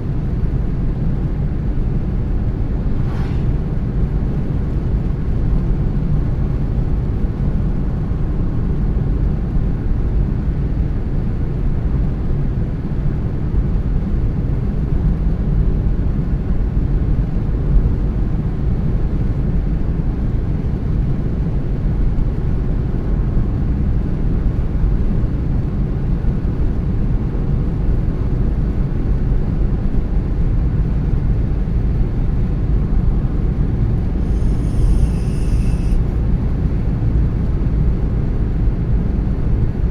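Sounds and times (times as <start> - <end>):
car driving rumble: 1.5 - 5.4.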